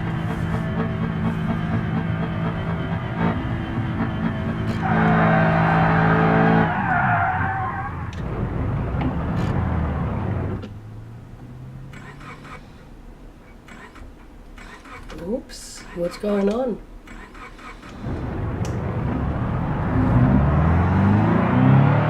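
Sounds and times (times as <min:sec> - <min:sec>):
car engine revving: 0:00.0 - 0:15.1, 0:17.1 - 0:22.0.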